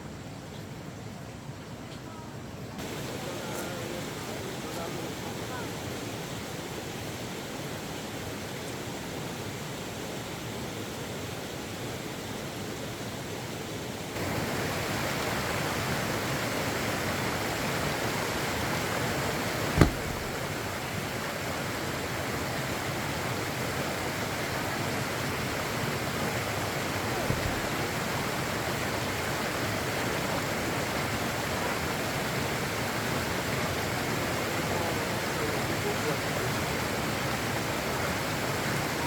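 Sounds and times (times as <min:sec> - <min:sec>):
sharp knock: 0:19.8 - 0:20.5, 0:27.3 - 0:27.7
steady rushing noise: 0:19.8 - 0:20.9.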